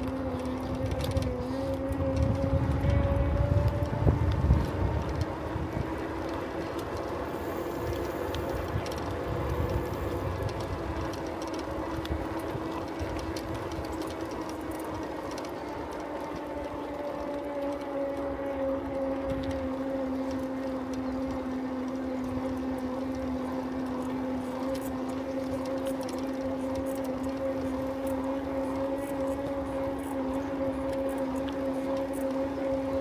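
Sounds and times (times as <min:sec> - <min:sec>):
tyres rolling rumble: 0:00.0 - 0:18.3
bicycle humming whine: 0:00.0 - 0:33.0
wind buffeting microphone: 0:00.0 - 0:33.0.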